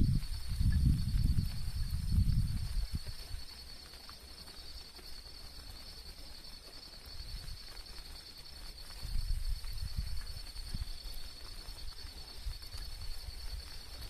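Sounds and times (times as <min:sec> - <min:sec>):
pulsing insect chorus: 0:00.0 - 0:14.0.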